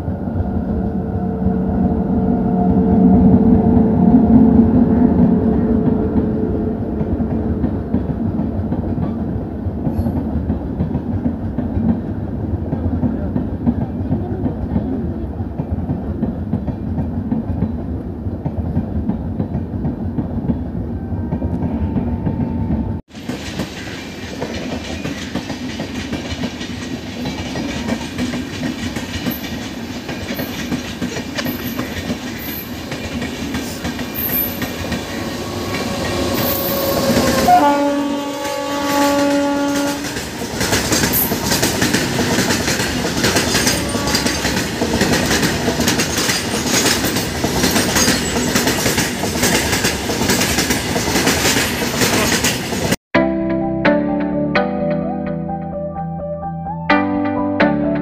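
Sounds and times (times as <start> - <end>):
electric locomotive horn: 0.0 - 7.7, 34.2 - 40.4, 43.5 - 44.6
train rail clatter: 5.4 - 20.7, 21.5 - 53.0
wheels clacking over rail joints: 23.1 - 53.0.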